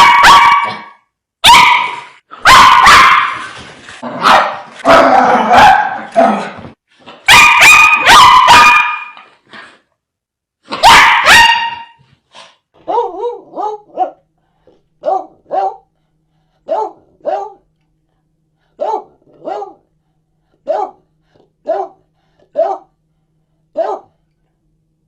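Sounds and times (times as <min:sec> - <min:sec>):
dogs barking: 0:00.0 - 0:03.5, 0:04.2 - 0:06.2, 0:07.2 - 0:09.2, 0:10.7 - 0:12.0, 0:12.8 - 0:14.2, 0:15.0 - 0:15.9, 0:16.6 - 0:17.6, 0:18.8 - 0:19.8, 0:20.6 - 0:21.0, 0:21.6 - 0:22.9, 0:23.8 - 0:24.1.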